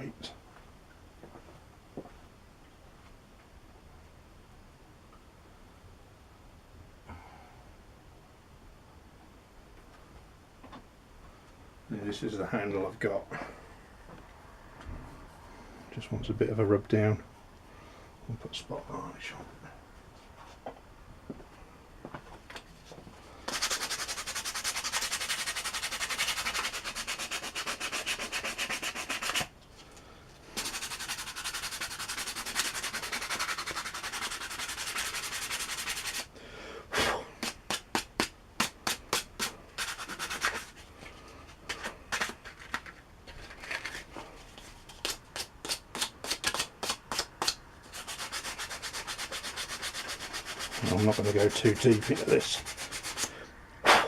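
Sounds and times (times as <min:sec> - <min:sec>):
sanding wood by hand: 0:23.5 - 0:29.5, 0:30.6 - 0:36.3, 0:37.4 - 0:40.8, 0:44.9 - 0:53.3.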